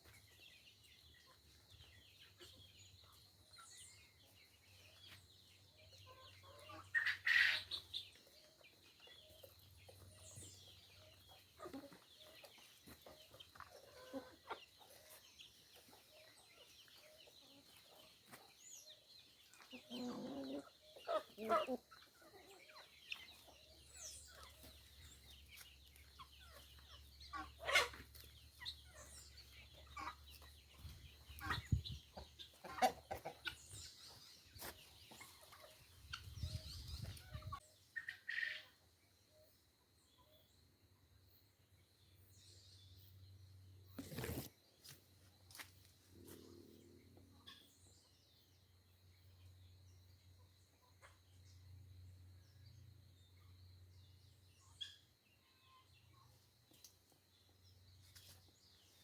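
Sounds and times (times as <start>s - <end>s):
chickens clucking: 0.0s - 39.0s, 50.4s - 51.6s.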